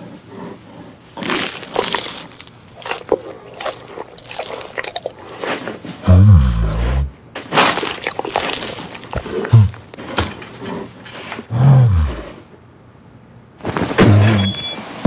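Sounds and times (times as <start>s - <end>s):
bear growling: 0.0s - 12.5s.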